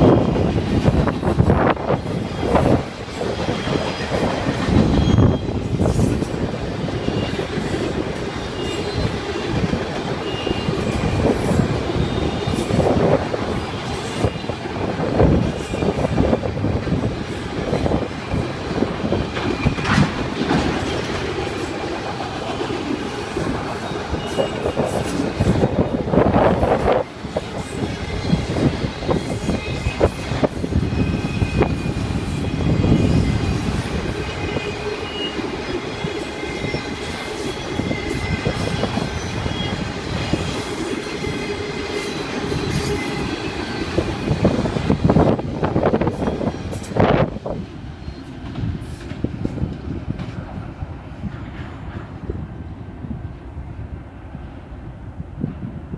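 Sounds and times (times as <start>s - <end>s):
steel wheels rumbling on rail: 0.0s - 55.9s
faint high-pitched wheel squeals: 4.7s - 5.6s
wheels clacking over rail joints: 16.8s - 30.6s.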